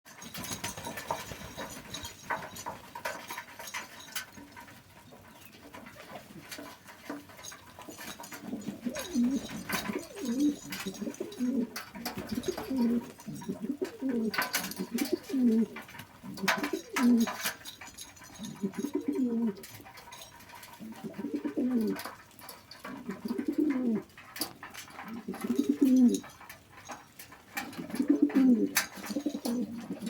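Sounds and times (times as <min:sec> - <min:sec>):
pigeons cooing: 0:05.1 - 0:17.6, 0:18.3 - 0:26.6, 0:27.5 - 0:30.0.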